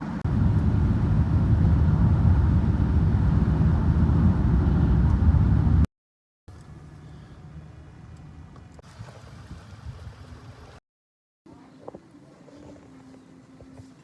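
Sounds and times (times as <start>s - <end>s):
loud low rumble: 0.0s - 5.9s.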